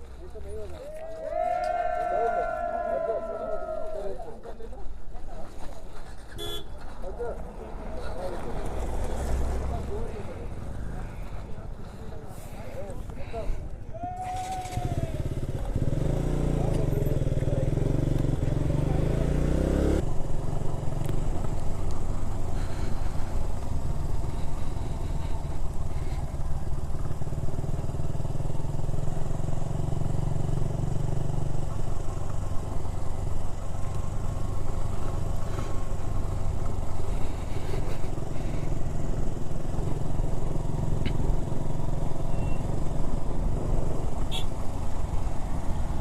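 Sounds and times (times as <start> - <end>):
motorcycle engine running: 14.4 - 46.0.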